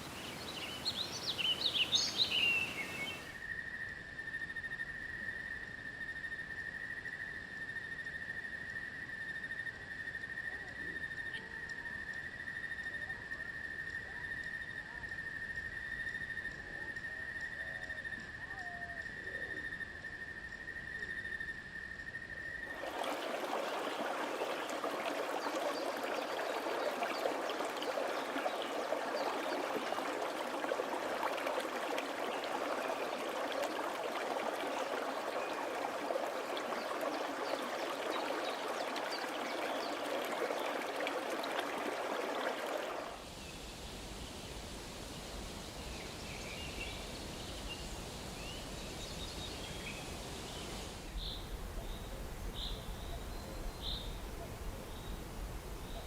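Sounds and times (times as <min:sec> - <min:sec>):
babbling stream: 0:00.0 - 0:03.4, 0:22.7 - 0:56.0.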